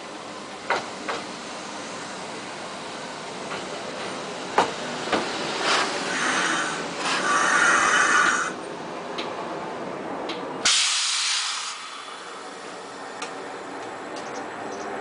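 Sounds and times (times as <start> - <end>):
electric train running: 0.0 - 9.4
compressed air hiss: 10.7 - 12.2.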